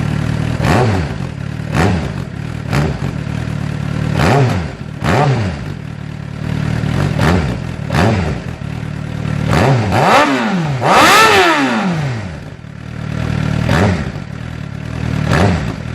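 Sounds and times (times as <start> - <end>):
motorcycle engine revving: 0.0 - 15.9.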